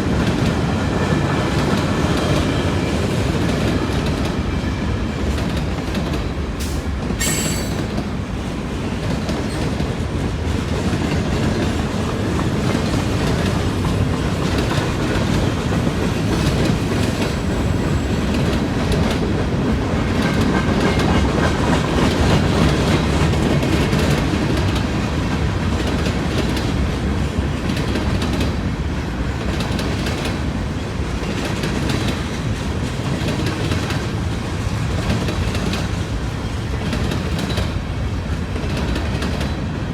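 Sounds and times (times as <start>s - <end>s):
freight train cars rolling on rails: 0.0s - 39.9s.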